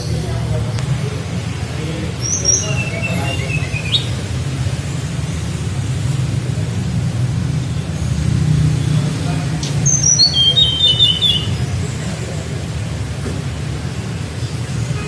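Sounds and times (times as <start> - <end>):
songbird high chirps: 2.2 - 4.2, 9.6 - 11.7.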